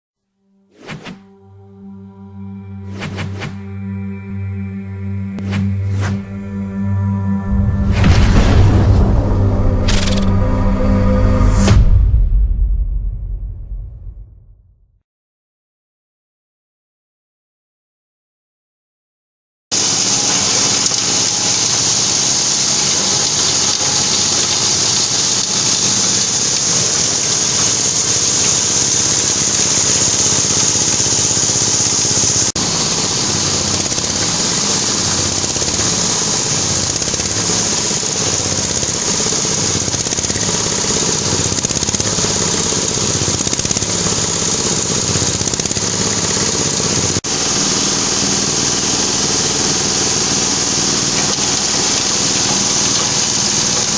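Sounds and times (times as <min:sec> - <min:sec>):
grinding mill running: 0:19.8 - 0:53.9.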